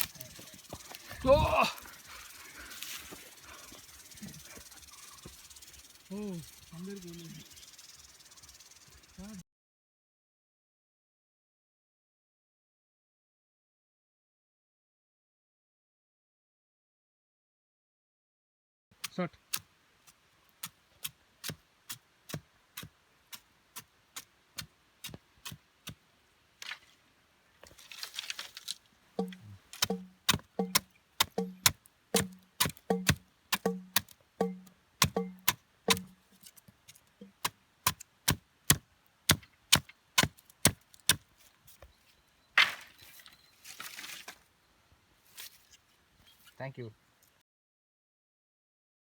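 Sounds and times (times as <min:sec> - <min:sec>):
sharp wooden knocks: 0:29.2 - 0:36.2.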